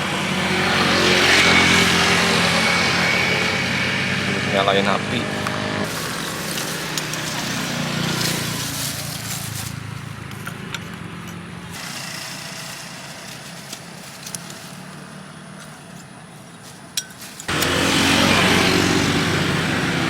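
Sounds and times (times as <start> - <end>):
vehicle engine passing by: 0.0 - 11.6, 17.5 - 20.0.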